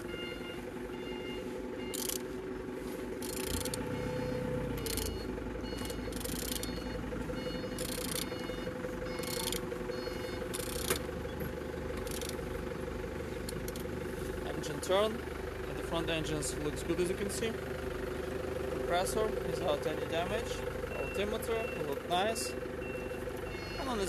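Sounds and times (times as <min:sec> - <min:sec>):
rasping cranking strokes: 0:03.2 - 0:03.8.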